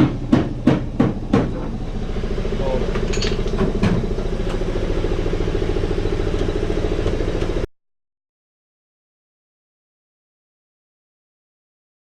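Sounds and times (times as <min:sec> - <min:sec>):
motor pulsing drone: 0:00.0 - 0:07.6
sharp metal clanks: 0:03.0 - 0:03.8.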